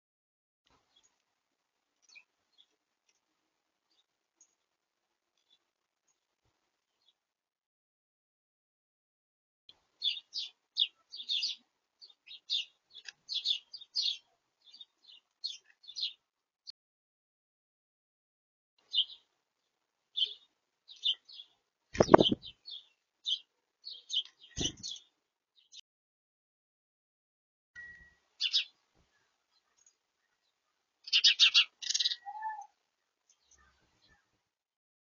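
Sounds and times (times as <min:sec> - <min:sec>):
small birds chirping: 0:00.7 - 0:01.3, 0:02.0 - 0:04.7, 0:05.3 - 0:06.3, 0:09.7 - 0:16.3, 0:18.8 - 0:25.8, 0:27.8 - 0:34.4
loud thumps: 0:22.0 - 0:22.5.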